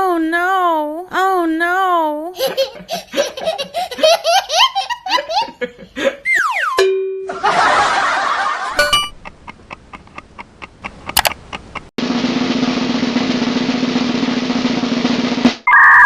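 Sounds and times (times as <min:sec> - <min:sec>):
snare drum roll: 0:12.0 - 0:15.6.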